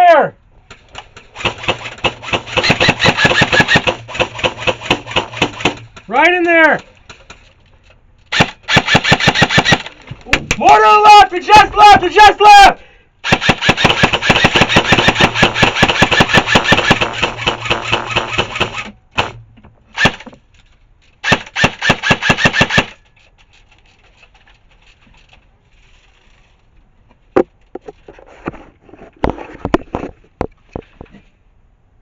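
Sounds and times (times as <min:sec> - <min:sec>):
airsoft rifle firing bursts: 0:01.3 - 0:05.9, 0:08.3 - 0:10.0, 0:13.2 - 0:19.4, 0:20.0 - 0:20.2, 0:21.2 - 0:23.0.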